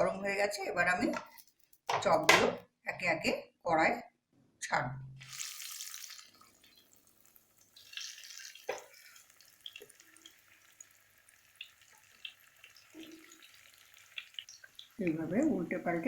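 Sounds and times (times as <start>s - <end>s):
oil crackling: 5.2s - 15.5s
food sizzling in hot oil: 5.2s - 16.0s.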